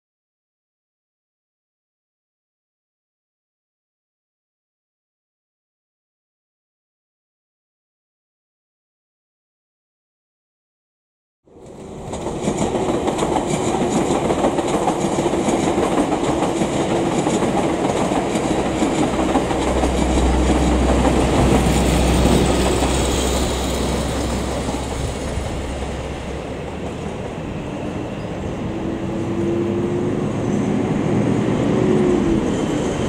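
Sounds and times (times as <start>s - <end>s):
electric train rumbling on tracks: 11.5s - 33.0s.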